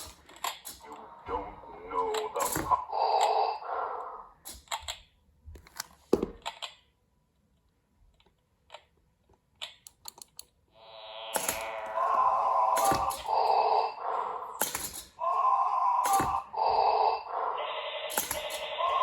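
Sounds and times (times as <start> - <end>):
mechanical clicks and taps: 8.1 - 10.6.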